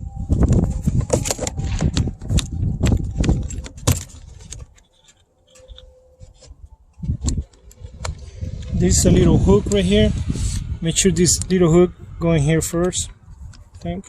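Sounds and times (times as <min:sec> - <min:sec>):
car door trim parts rattling: 0:00.4 - 0:06.4.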